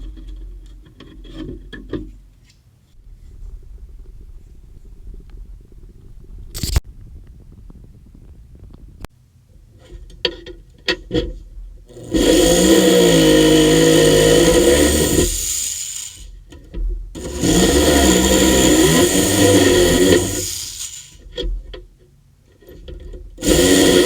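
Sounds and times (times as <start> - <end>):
power tool motor: 11.9 - 16.4, 17.2 - 21.2, 23.4 - 24.0.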